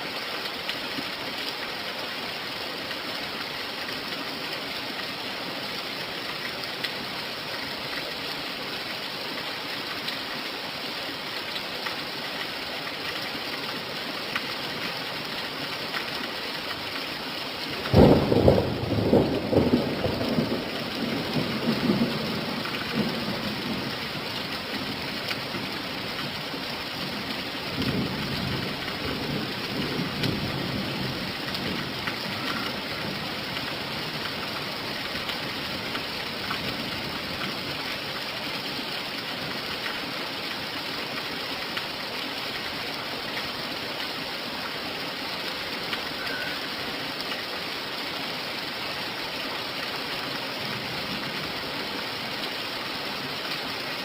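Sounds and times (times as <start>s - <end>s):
steady rain: 0.0s - 54.0s
thunder rumbling: 17.9s - 23.9s.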